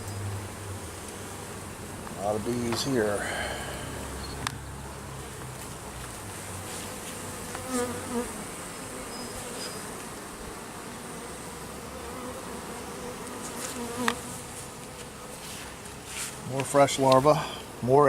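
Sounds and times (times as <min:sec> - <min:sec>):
honey bees buzzing: 0:00.0 - 0:18.0.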